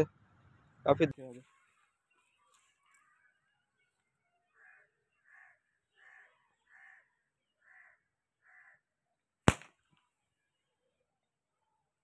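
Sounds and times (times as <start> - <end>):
bird harsh calls: 1.4 - 8.9
sharp crack: 9.4 - 10.0.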